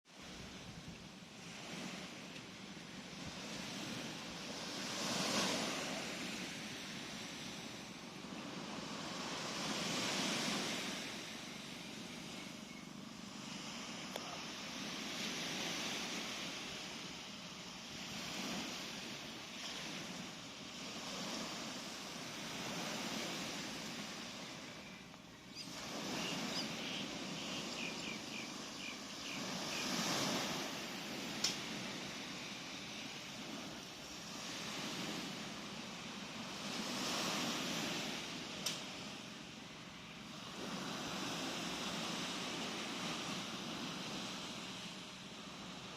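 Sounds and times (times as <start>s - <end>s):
sea waves washing in: 0.1s - 45.9s
faint click: 31.4s - 31.6s, 38.6s - 38.9s.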